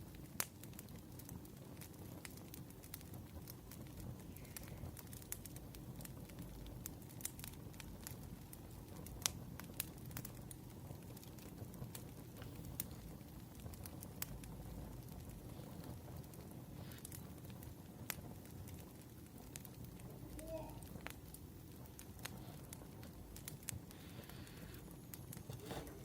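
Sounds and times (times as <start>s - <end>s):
firewood crackling and popping: 0.0s - 26.0s
low rumble of fire: 0.0s - 26.0s.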